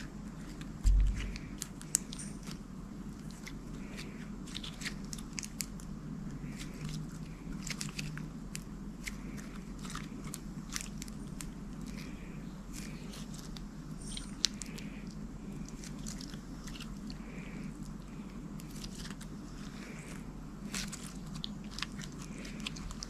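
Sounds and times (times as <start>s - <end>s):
loud low thump: 0.8s - 1.3s.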